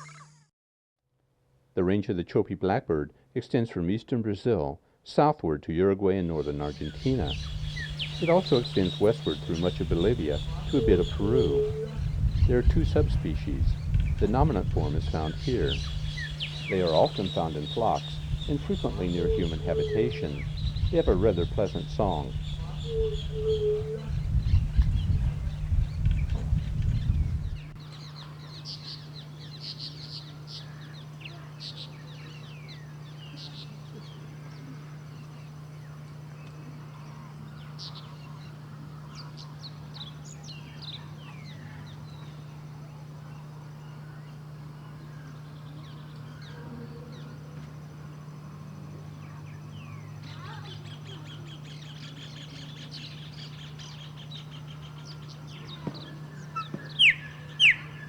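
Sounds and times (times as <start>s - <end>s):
bird trilling: 6.4s - 33.8s, 50.0s - 58.0s
birds chirping and whistling: 6.4s - 34.2s, 49.7s - 58.0s
sharp bird calls: 6.4s - 36.0s, 49.2s - 58.0s
steady low hum: 6.4s - 58.0s.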